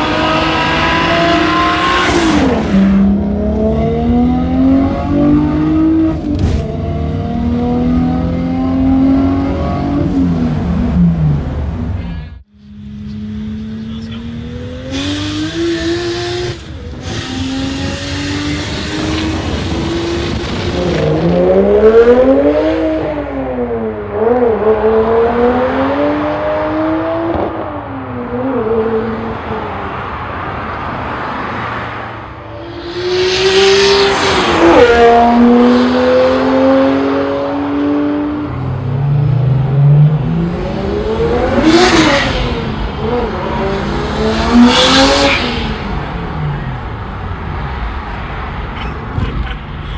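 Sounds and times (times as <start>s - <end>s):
car engine accelerating hard: 32.6s - 47.0s.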